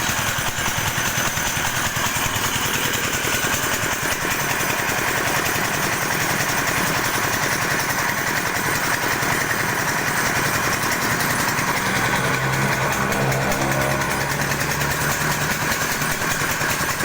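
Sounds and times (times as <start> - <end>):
pellet mill clattering: 0.0 - 17.0.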